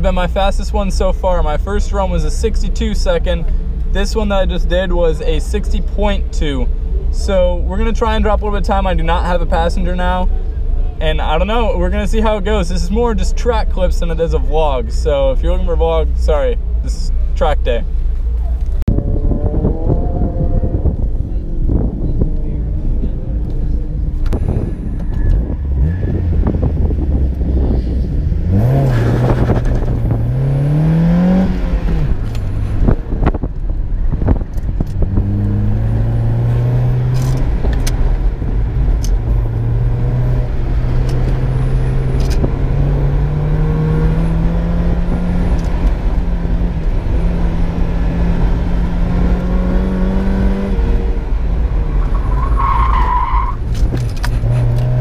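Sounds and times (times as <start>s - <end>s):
car engine revving: 17.8s - 55.0s.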